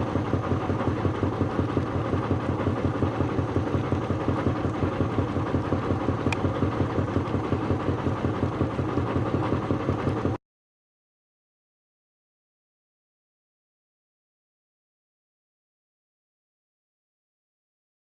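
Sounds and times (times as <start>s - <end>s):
heavy machinery engine pulsing: 0.0s - 10.4s.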